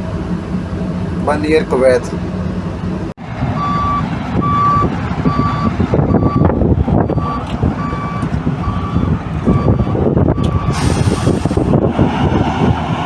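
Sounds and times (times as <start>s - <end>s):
diesel engine running: 0.0s - 13.0s
excavator travel alarm beeping: 3.6s - 11.3s
machine working clatter: 10.7s - 11.8s.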